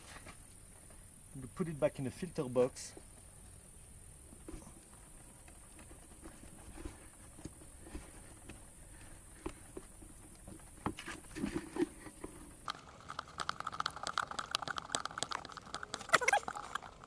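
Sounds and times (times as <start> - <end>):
squeaky rubber rubbing: 13.8 - 17.0.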